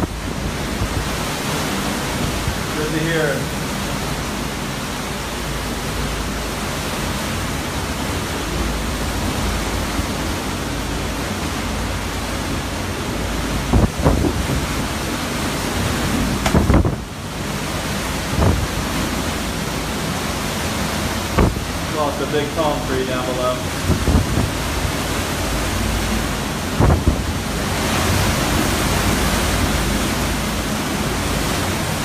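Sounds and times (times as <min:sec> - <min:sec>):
hurricane wind and rain: 0:00.0 - 0:32.0
wind gusts thumping microphone: 0:00.0 - 0:32.0.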